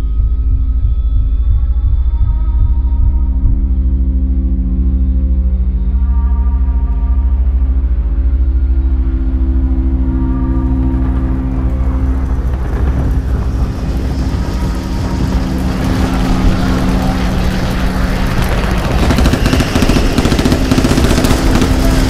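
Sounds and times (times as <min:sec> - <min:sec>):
battle sound effects: 0:14.4 - 0:22.0.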